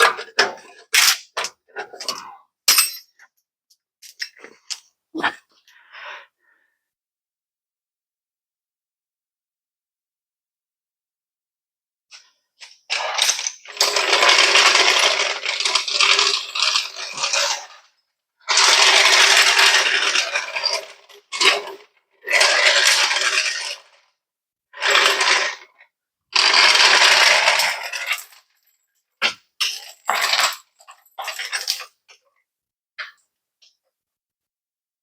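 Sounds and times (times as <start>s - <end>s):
power tool running: 12.9s - 17.8s, 18.5s - 21.7s, 26.4s - 28.2s.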